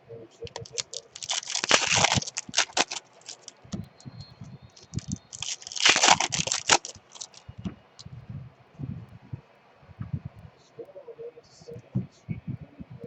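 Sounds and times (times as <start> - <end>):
card pack wrappers crinkling: 0.4 - 3.7, 4.8 - 7.4
small clicks: 0.5 - 4.1, 4.8 - 7.4.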